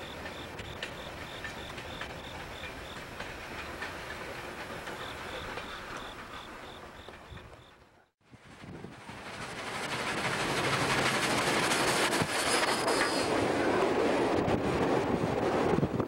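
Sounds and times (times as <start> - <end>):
insect chirping: 0.0 - 3.1, 5.0 - 7.7
wheels clicking over rail joints: 0.0 - 8.0
train rumbling: 0.0 - 16.0.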